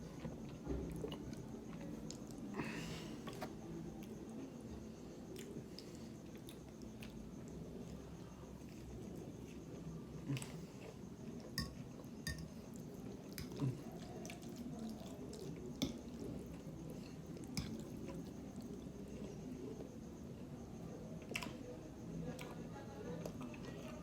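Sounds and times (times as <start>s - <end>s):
close chewing with wet smacks: 12.7s - 18.8s.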